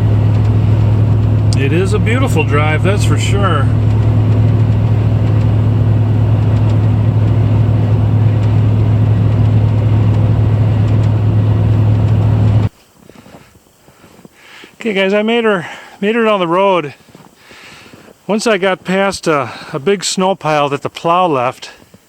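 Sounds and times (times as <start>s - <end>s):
truck engine and road drone: 0.0s - 12.8s.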